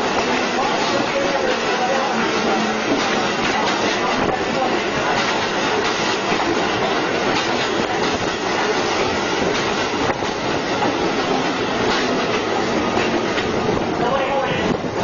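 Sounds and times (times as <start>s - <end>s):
train wheels rumbling on rails: 0.0s - 15.0s
wheels clacking over rail joints: 0.0s - 15.0s.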